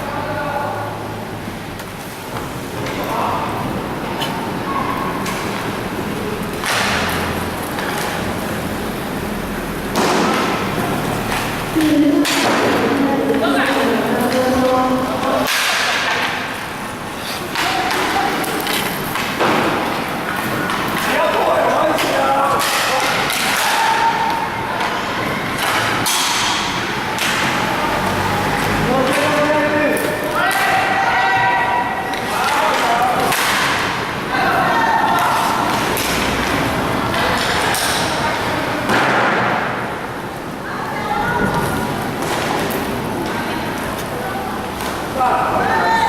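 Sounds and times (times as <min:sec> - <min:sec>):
voices: 0:00.0 - 0:46.0
hockey sticks and puck clattering: 0:05.2 - 0:09.2, 0:09.8 - 0:40.4, 0:41.3 - 0:45.7
people shouting: 0:21.1 - 0:26.1, 0:30.2 - 0:33.4, 0:34.2 - 0:35.7, 0:45.2 - 0:46.0.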